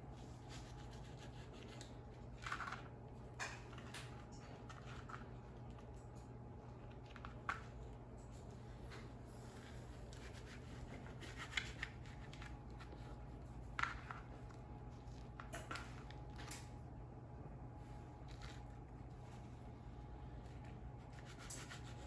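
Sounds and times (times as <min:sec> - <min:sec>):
steady low hum: 0:00.0 - 0:22.0
tortilla being cut and handled: 0:00.2 - 0:05.4, 0:10.0 - 0:14.3, 0:20.6 - 0:22.0.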